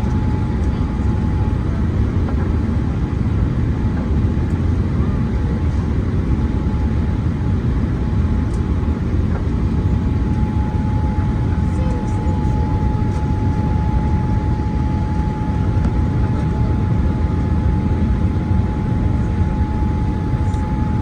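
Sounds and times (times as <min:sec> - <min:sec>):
airliner cabin engine rumble: 0:00.0 - 0:21.0.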